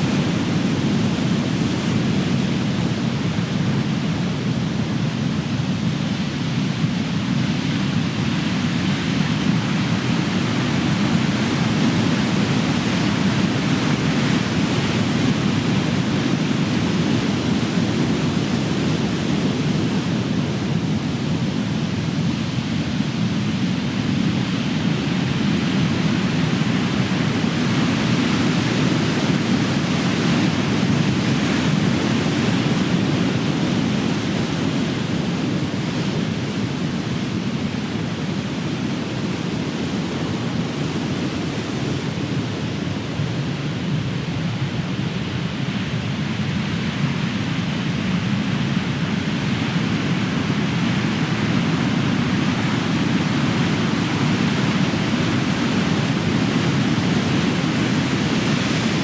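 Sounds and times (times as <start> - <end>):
ocean waves breaking: 49.7 - 59.0.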